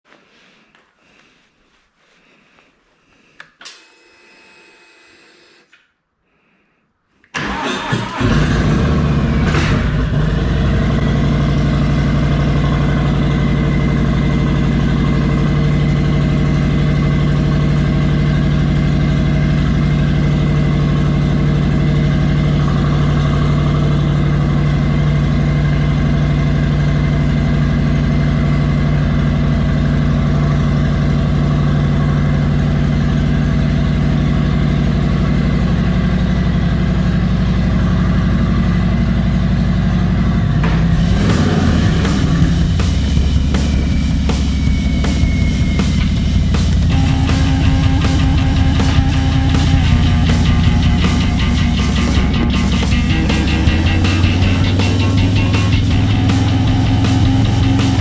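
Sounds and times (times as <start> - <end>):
click: 3.4 - 3.8
motorcycle engine starting and idling: 7.3 - 58.0.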